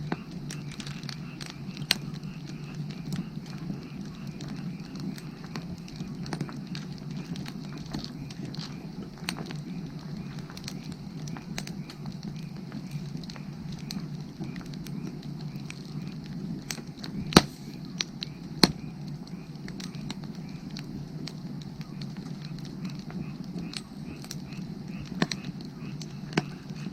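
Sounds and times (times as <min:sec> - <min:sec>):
frogs calling: 0:00.0 - 0:26.9
wood fire crackling: 0:00.0 - 0:26.9
loud sharp pops: 0:15.6 - 0:18.9.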